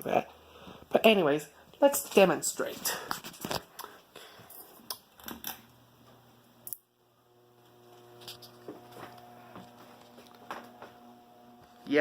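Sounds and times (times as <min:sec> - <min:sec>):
ceiling fan motor humming: 0:06.0 - 0:12.0.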